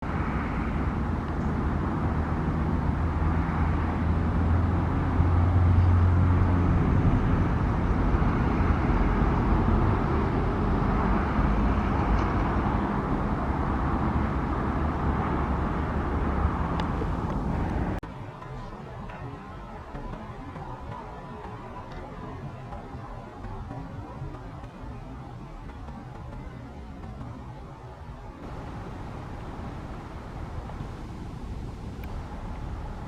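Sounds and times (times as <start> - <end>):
low engine drone: 0.0 - 33.0.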